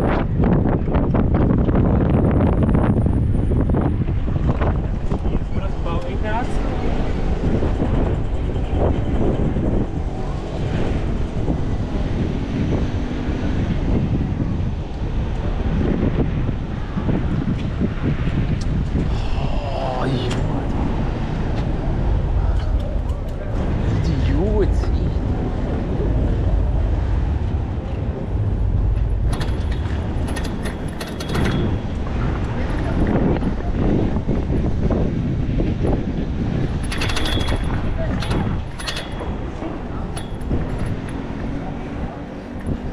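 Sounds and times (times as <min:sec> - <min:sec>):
traffic noise: 0:00.0 - 0:42.9
wind rumbling over microphone: 0:00.0 - 0:42.9
rattling clicks: 0:28.9 - 0:32.9, 0:36.8 - 0:39.5.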